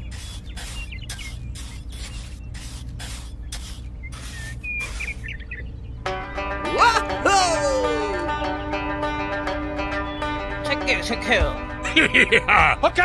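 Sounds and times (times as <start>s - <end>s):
trowel scraping wet cement: 0.0s - 5.3s
faint bird chirps: 0.0s - 6.0s.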